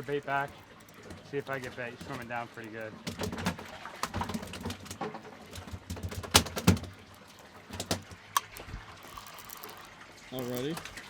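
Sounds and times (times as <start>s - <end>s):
sharp knocks and thumps: 0.0s - 8.8s.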